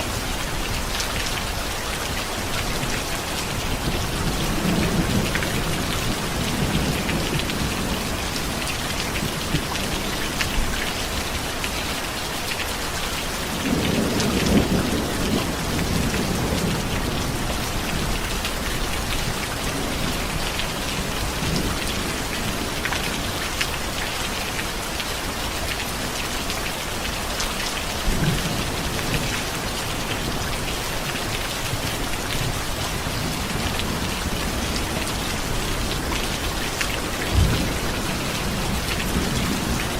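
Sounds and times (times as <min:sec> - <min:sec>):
heavy rain falling: 0:00.0 - 0:39.9
thunder rumbling: 0:37.0 - 0:39.9.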